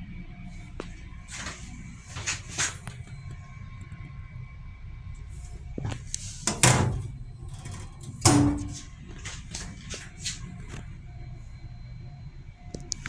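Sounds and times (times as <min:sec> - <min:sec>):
low rumble of railcar running: 0:00.0 - 0:13.0
door banging: 0:06.5 - 0:08.8.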